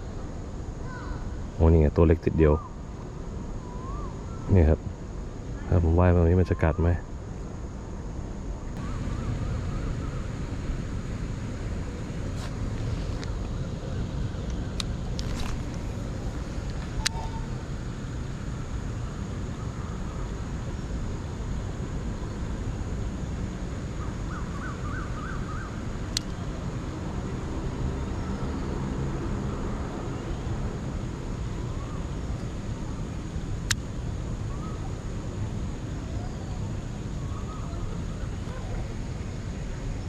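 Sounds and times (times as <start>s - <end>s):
low outdoor rumble: 0.0s - 40.0s
rising chirps: 15.9s - 18.1s.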